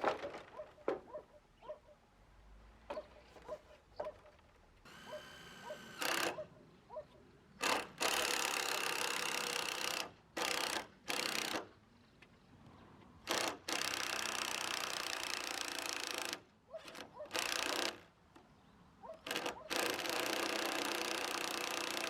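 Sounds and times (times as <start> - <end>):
power tool running in bursts: 4.9 - 6.4.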